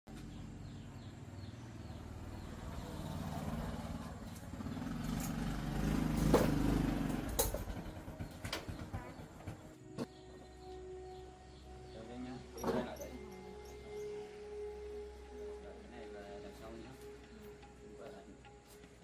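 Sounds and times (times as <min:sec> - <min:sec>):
motorcycle engine running: 0:00.1 - 0:10.6.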